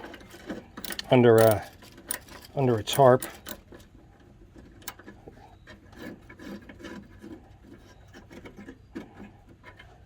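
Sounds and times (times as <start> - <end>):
tools scraping metal parts: 0.0 - 10.0.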